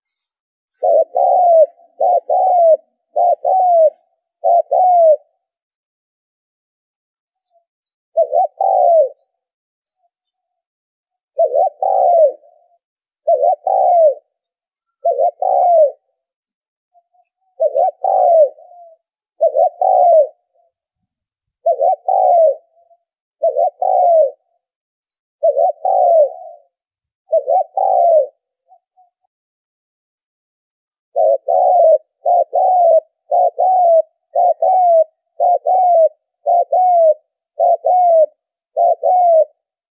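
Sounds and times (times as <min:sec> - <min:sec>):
dove cooing: 0:00.0 - 0:05.6, 0:08.1 - 0:09.4, 0:11.3 - 0:16.3, 0:17.0 - 0:20.8, 0:21.6 - 0:24.7, 0:25.4 - 0:29.3, 0:31.1 - 0:39.8.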